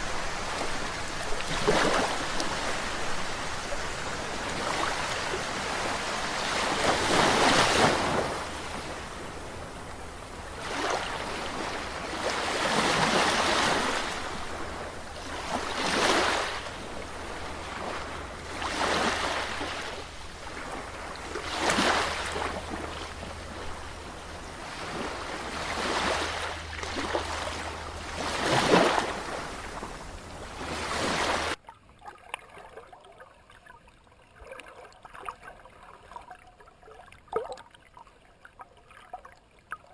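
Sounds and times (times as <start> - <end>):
waves splashing: 0.0 - 31.6
steady low hum: 19.2 - 31.6.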